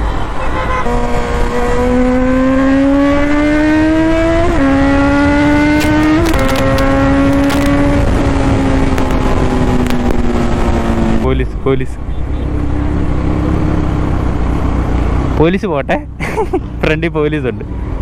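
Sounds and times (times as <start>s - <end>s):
motorcycle engine accelerating: 0.9s - 11.4s, 12.4s - 16.1s
wind noise rumble: 0.9s - 12.1s.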